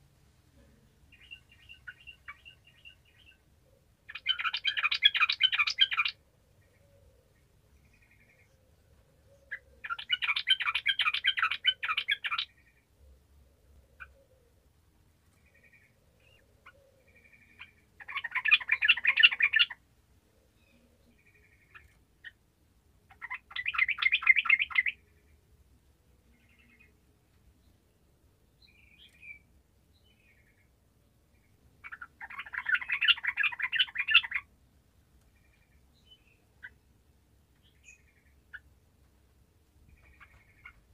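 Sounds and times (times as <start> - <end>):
bubbly bird song: 4.1 - 6.2, 9.8 - 12.5, 17.2 - 19.8, 23.1 - 25.0, 31.8 - 34.5.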